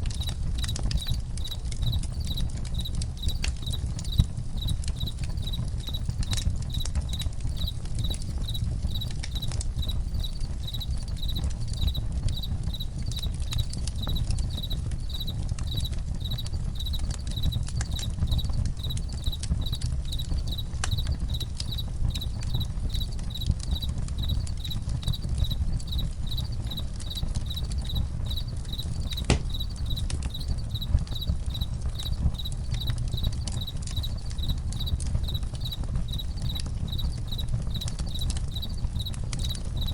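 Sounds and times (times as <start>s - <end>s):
campfire crackling and popping: 0.0s - 39.9s
crickets chirping: 0.2s - 39.9s.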